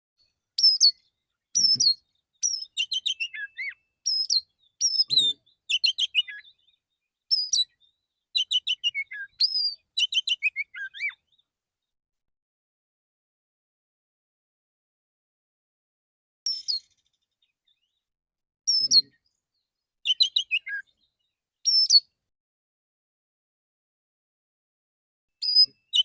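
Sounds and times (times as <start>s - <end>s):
magpie-robin singing: 0.6s - 11.5s, 16.5s - 18.0s, 18.7s - 22.2s, 25.4s - 26.0s.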